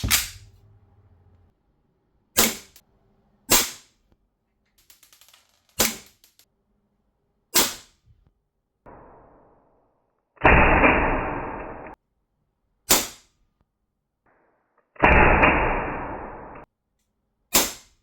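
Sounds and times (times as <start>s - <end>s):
airsoft pistol shots: 0.0s - 0.6s, 2.4s - 2.8s, 12.9s - 13.3s, 17.5s - 17.9s.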